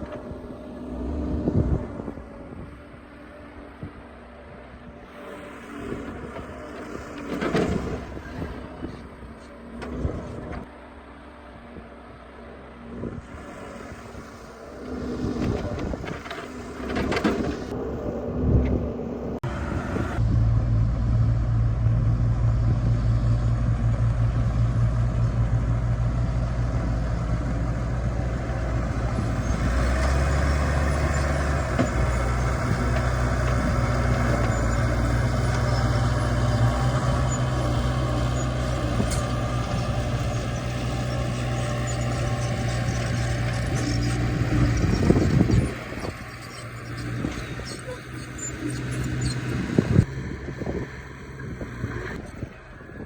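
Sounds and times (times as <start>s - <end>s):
excavator diesel engine running: 0.0s - 53.0s
knocking and scraping: 15.1s - 17.7s.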